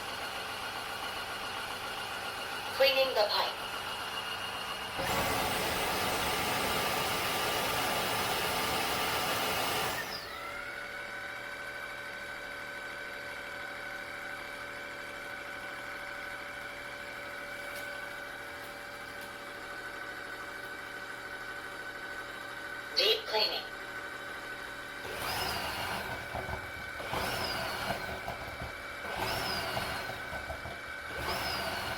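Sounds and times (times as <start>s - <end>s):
vacuum suction motor: 3.5s - 12.9s, 24.9s - 31.9s.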